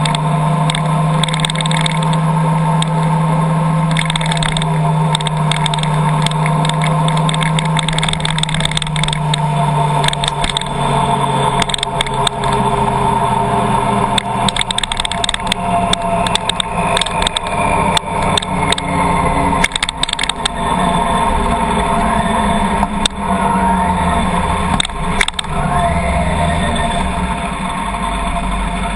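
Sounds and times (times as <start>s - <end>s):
sharp ticks: 0.0s - 2.2s, 2.8s - 3.1s, 3.9s - 10.8s, 11.5s - 12.6s, 14.0s - 19.0s, 19.6s - 20.6s, 22.8s - 23.2s, 24.7s - 25.5s
car engine and road noise: 0.0s - 28.9s.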